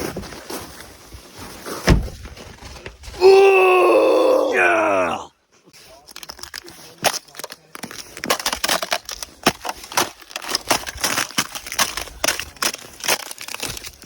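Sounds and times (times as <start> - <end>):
irregular crunching: 5.8 - 14.0.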